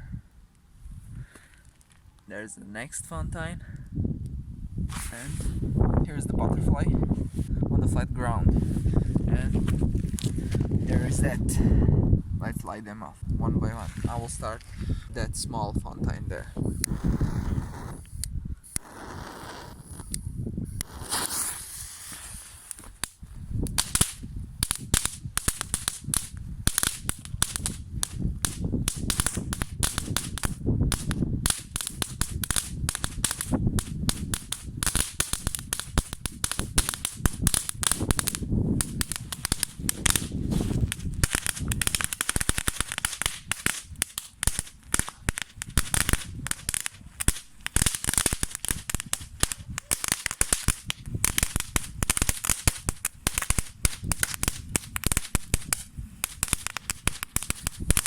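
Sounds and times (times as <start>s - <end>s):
rapid crackling pops: 16.6s - 58.0s
firework fountain hissing: 16.7s - 18.1s, 18.7s - 20.2s, 20.8s - 22.9s.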